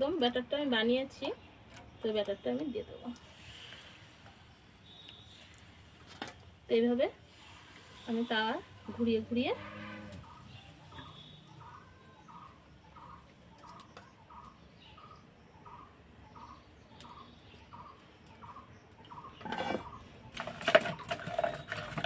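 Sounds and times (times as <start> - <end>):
bird calling: 7.6 - 20.1
firewood shifted in stove: 19.4 - 22.0.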